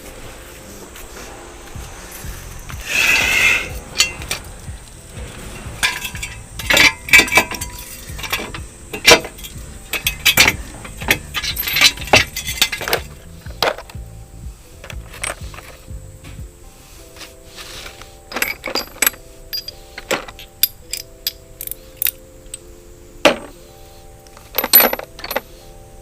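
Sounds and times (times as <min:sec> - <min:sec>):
short scraping hiss: 0:00.6 - 0:04.0
metal tools clinking: 0:02.1 - 0:14.0, 0:14.8 - 0:15.9, 0:17.1 - 0:22.6, 0:23.2 - 0:25.7.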